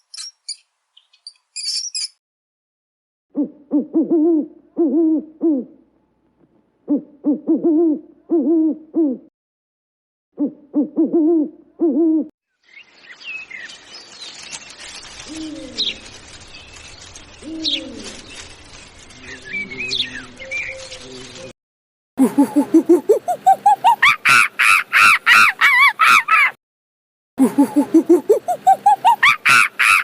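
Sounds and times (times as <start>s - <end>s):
birds chirping: 0.0s - 2.2s, 12.6s - 21.5s
owl hooting: 3.4s - 5.8s
low cooing call: 3.4s - 6.0s, 6.9s - 9.3s, 10.4s - 12.3s, 15.3s - 16.0s, 17.4s - 18.3s.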